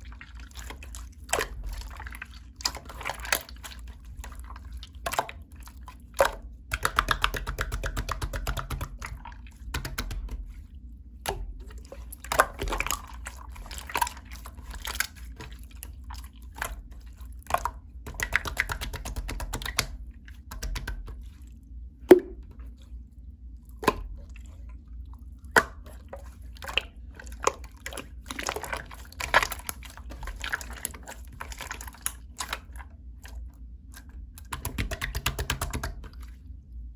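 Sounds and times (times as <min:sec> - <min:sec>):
slime clicking and popping: 0:22.1 - 0:22.4.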